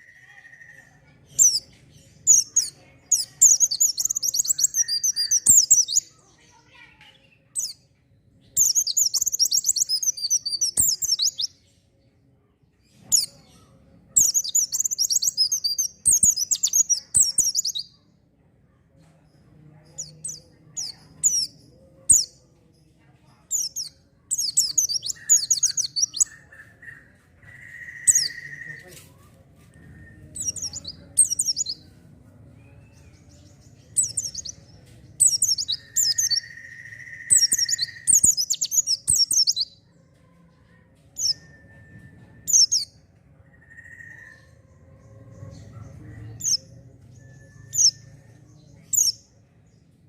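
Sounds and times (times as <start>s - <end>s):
bird twittering: 1.4s - 6.1s, 8.5s - 11.5s, 14.2s - 17.9s, 23.5s - 29.0s, 29.7s - 31.9s, 32.6s - 39.7s.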